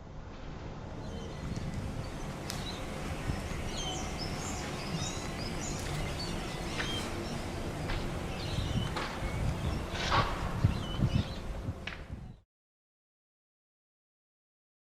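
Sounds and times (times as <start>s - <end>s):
outdoor background noise: 0.0s - 12.4s
birds chirping: 1.0s - 12.4s.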